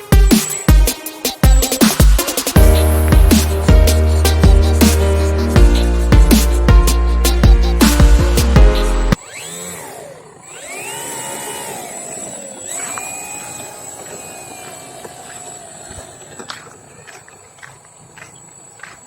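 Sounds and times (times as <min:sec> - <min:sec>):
music: 0:00.0 - 0:09.2
model plane motor and propeller whine: 0:09.2 - 0:16.8.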